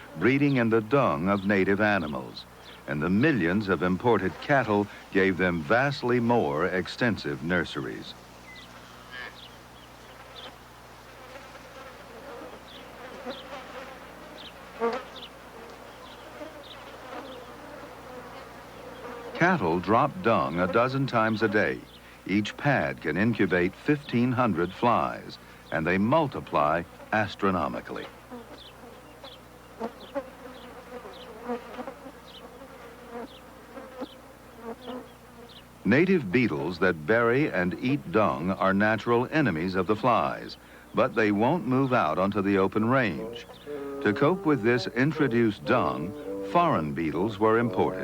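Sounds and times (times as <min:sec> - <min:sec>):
flies buzzing: 0:00.0 - 0:48.0.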